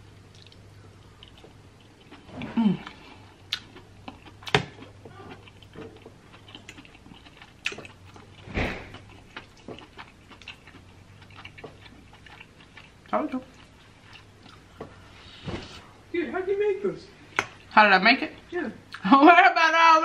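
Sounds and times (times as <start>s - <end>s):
soft chewing and mouth noises: 0.0s - 15.9s.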